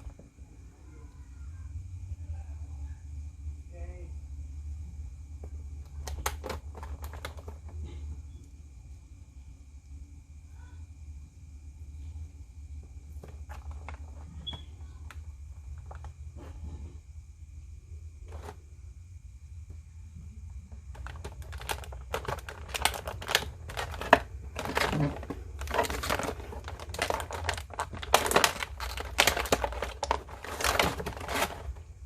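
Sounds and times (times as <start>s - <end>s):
packaging crinkling and rustling: 5.9s - 8.0s, 13.1s - 16.2s, 18.2s - 18.6s, 20.8s - 32.0s.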